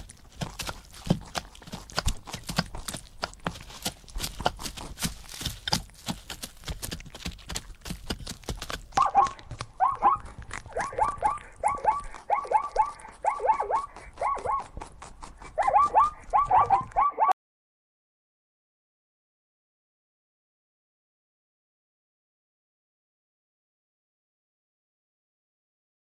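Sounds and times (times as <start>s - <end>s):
zebra yelping barks: 8.9s - 17.3s.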